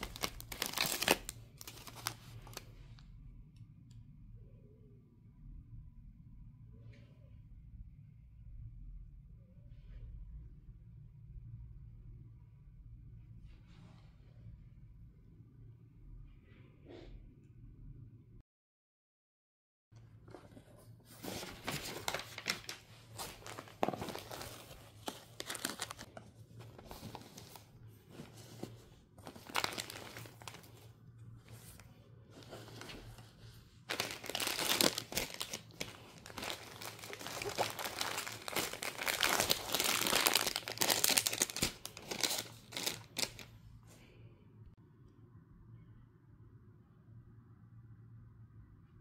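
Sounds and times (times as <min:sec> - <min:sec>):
packaging crinkling and rustling: 0:00.0 - 0:02.7, 0:20.5 - 0:30.9, 0:31.5 - 0:43.5.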